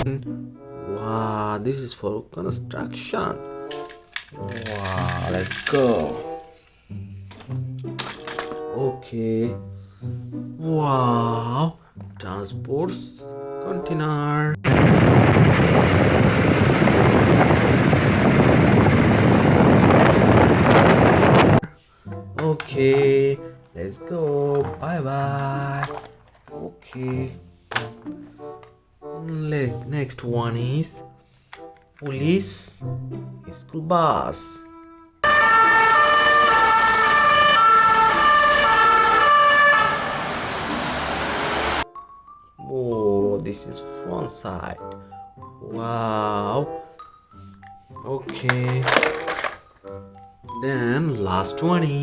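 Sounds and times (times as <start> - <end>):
rushing vehicle noise: 14.7 - 21.6, 39.0 - 41.8
toy two-tone siren: 35.2 - 40.1
hiss: 40.1 - 41.8.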